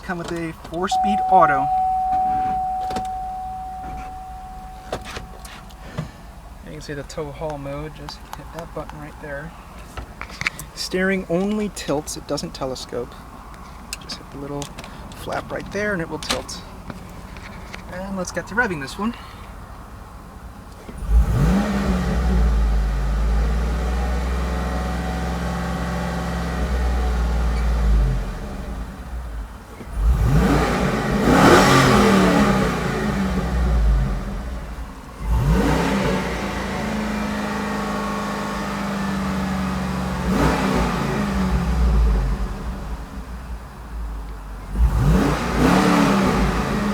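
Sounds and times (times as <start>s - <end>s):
engine revving: 21.0s - 24.3s, 29.9s - 34.3s, 35.2s - 43.0s, 44.7s - 46.9s.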